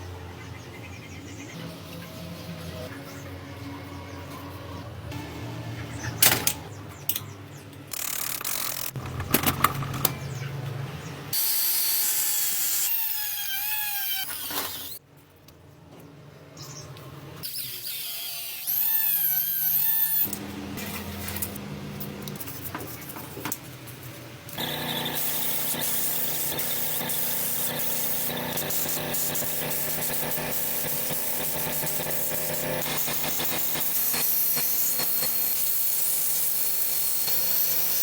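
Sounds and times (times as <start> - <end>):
metal parts clicking and knocking: 7.9 - 10.2
power tool whining: 11.4 - 15.0, 24.5 - 38.0.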